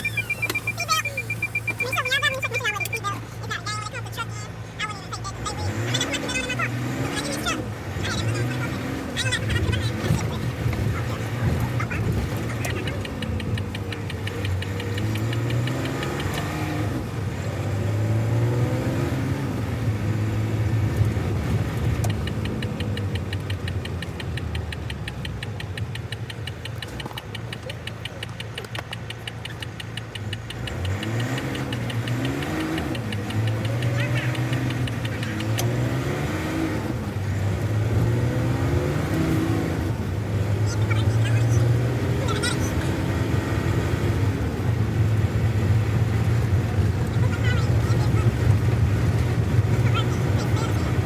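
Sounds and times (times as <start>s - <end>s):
truck diesel engine pulling away: 0.0s - 3.5s, 26.5s - 51.0s.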